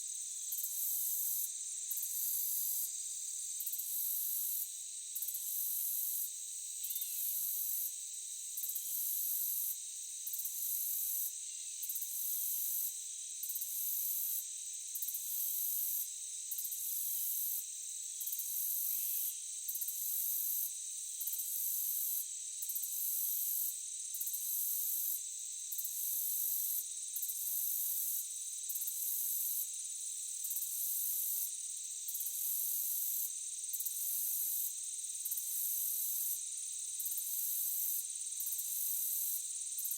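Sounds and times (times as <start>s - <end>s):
cricket-like trills: 6.8s - 8.0s.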